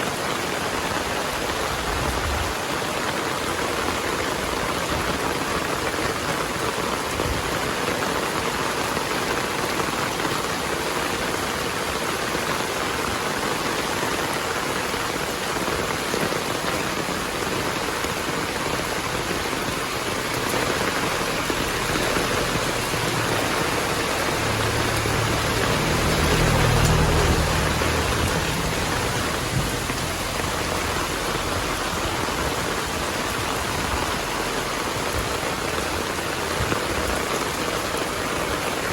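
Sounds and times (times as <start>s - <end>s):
heavy rain: 0.0s - 38.9s
thunder rumble: 18.2s - 35.4s.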